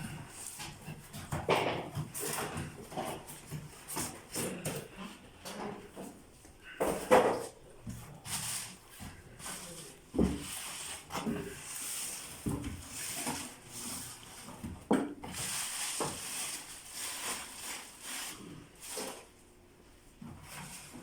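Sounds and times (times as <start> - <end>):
cardboard packaging rustling: 15.3 - 19.3.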